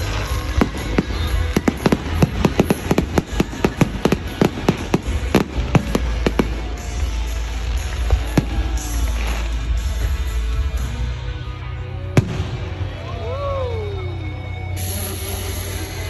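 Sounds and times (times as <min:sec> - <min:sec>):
fireworks bangs and crackles: 0:00.0 - 0:11.1, 0:12.0 - 0:13.2
music playing: 0:00.0 - 0:16.0.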